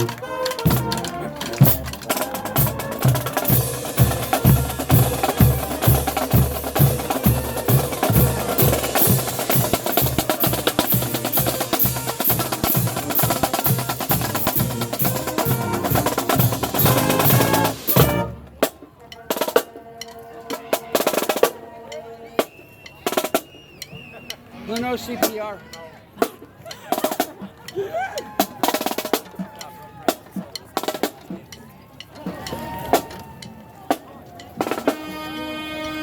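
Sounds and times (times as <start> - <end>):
steady drum beat: 0.0 - 19.7
marching band brass: 0.0 - 27.6, 32.2 - 36.0.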